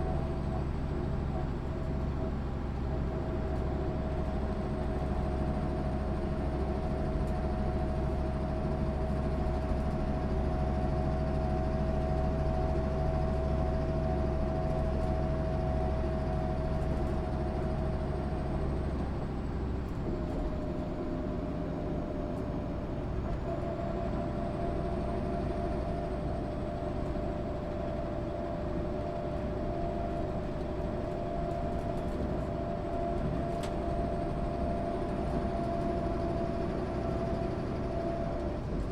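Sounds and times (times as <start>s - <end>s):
bus diesel engine running: 0.0s - 38.9s
engine whine: 23.2s - 38.9s.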